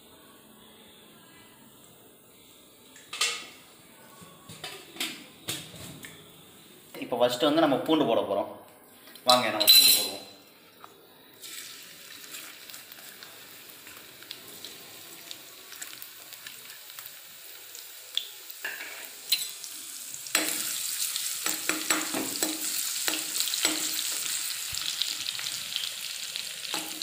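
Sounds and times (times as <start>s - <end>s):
garlic sizzling in hot oil: 11.4s - 27.0s.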